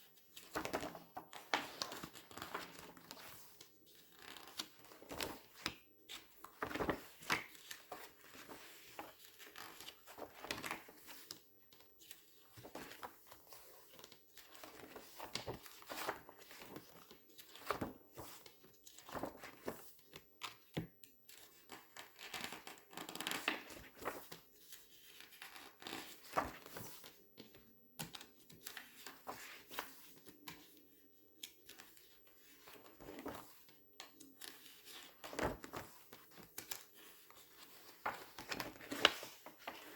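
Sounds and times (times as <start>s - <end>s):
glossy paper pages crinkling: 0.3s - 20.2s, 21.4s - 27.2s, 34.4s - 39.9s.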